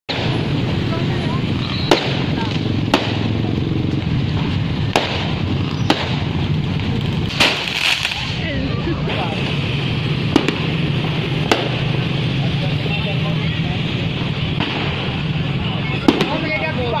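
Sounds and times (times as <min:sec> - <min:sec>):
crowd voices hubbub: 0:00.1 - 0:17.0
fireworks bangs: 0:00.1 - 0:17.0
fireworks crackle: 0:00.1 - 0:17.0.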